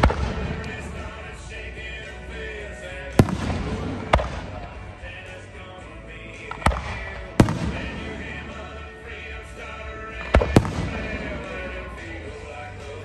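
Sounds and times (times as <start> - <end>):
background music: 0.0 - 13.0
firework shells bursting: 10.1 - 11.8.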